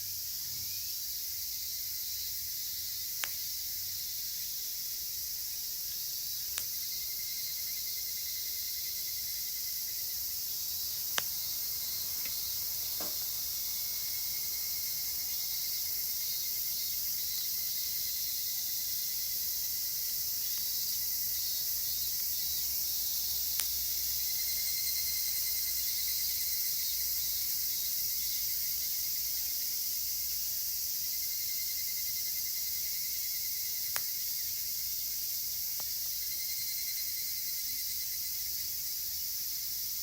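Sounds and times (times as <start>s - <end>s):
cicadas chorus: 0.0s - 40.0s
campfire popping: 3.1s - 17.5s, 19.2s - 24.8s, 33.5s - 36.3s.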